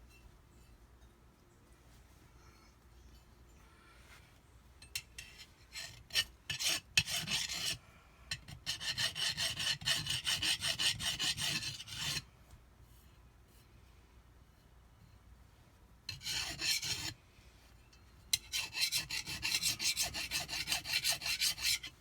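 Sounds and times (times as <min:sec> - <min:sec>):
hand file rasping on metal: 0:05.2 - 0:12.2, 0:16.1 - 0:17.2, 0:18.4 - 0:22.0.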